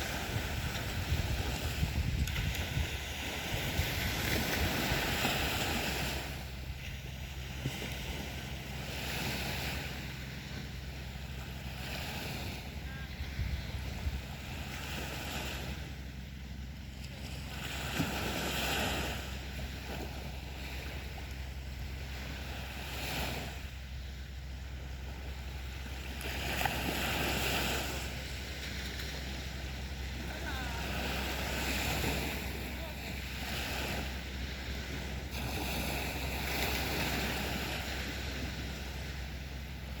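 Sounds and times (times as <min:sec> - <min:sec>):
sea waves breaking on beach: 0:00.0 - 0:40.0
wind rumble on microphone: 0:00.0 - 0:40.0.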